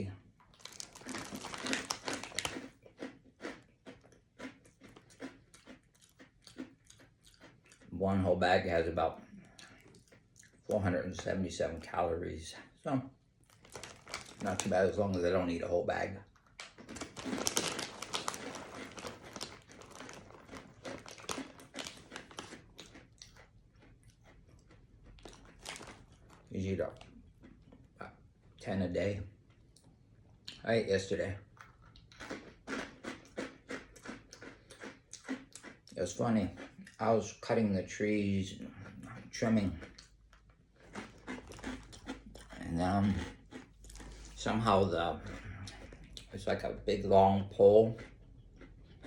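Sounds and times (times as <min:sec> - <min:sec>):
person chewing crunchy snack: 0:00.4 - 0:08.0, 0:09.2 - 0:10.8, 0:13.4 - 0:15.3, 0:16.3 - 0:27.9, 0:31.6 - 0:37.0, 0:38.7 - 0:44.5.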